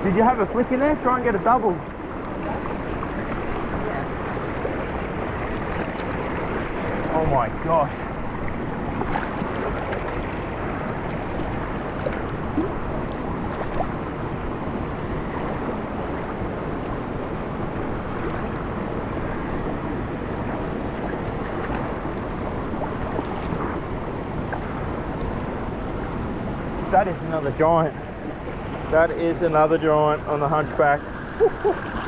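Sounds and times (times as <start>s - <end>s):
water rushing down a waterfall: 22.0s - 32.0s.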